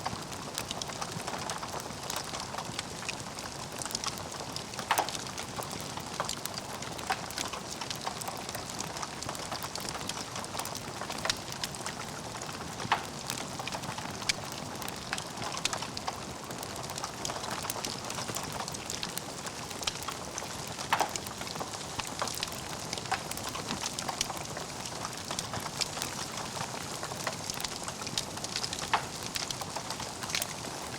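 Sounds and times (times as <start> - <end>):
fireplace logs crackling and popping: 0.0 - 30.9.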